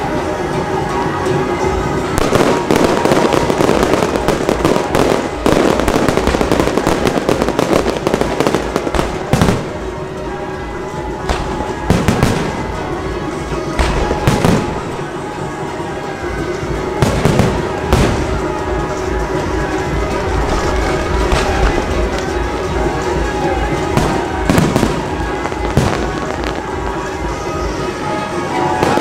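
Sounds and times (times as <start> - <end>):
fireworks crackling: 0.5 - 29.0
heavy firework bangs: 2.2 - 10.0, 11.2 - 12.8, 16.9 - 27.0.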